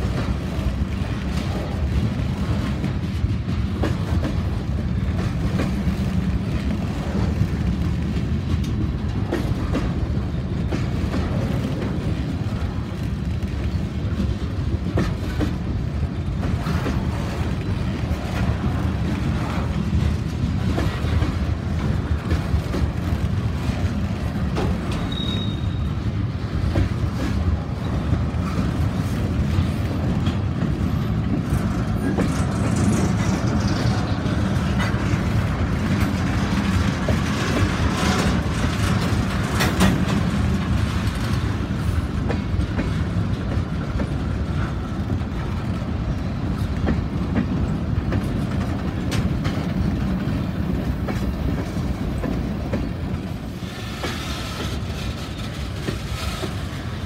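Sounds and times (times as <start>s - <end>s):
steel wheels rumbling on rail: 0.0s - 57.0s
wheels clicking over rail joints: 0.0s - 57.0s.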